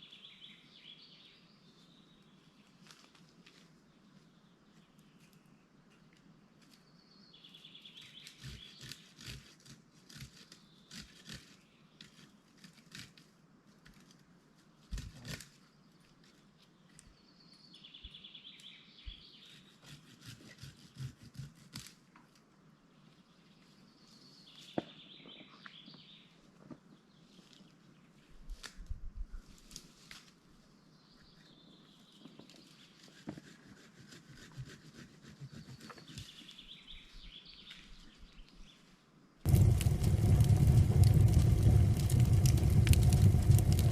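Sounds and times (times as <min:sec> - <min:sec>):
wood fire crackling: 0:39.5 - 0:43.9.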